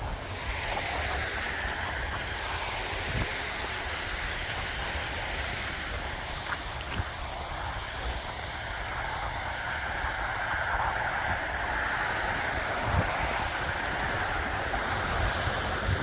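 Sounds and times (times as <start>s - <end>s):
snowstorm rushing hiss: 0.0s - 16.0s
wind rumbling on microphone: 0.0s - 16.0s.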